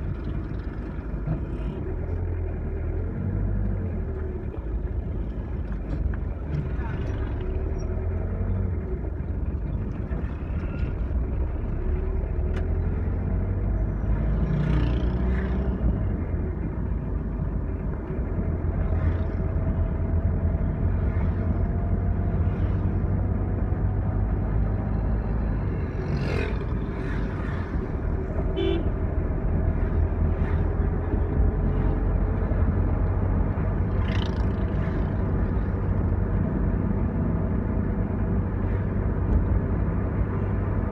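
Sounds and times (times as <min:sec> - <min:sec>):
vehicle engine and road rumble: 0:00.0 - 0:40.9
car horn toot: 0:28.5 - 0:28.9.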